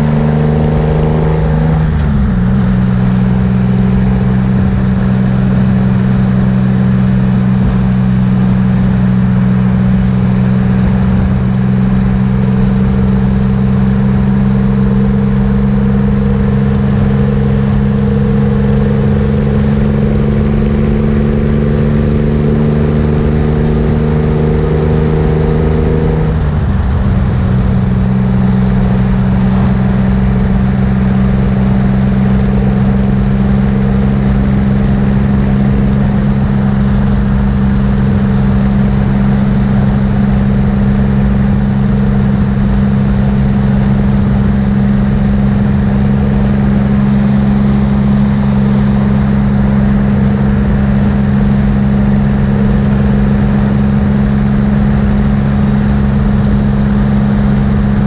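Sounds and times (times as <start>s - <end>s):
motorcycle engine droning: 0.0s - 58.0s
road noise: 0.0s - 58.0s
rushing wind: 0.0s - 58.0s.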